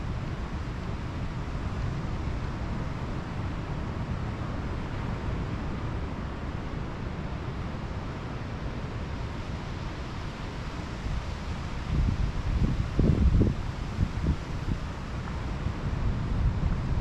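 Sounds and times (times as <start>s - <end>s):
wind buffeting microphone: 11.8s - 17.0s.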